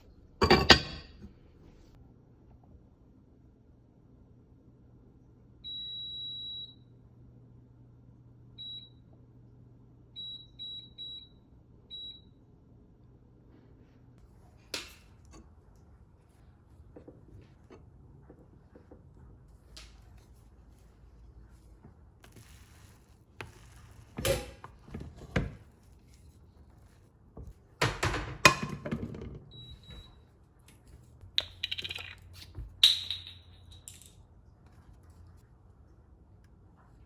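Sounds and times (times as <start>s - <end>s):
appliance electronic beeps: 29.4s - 30.3s.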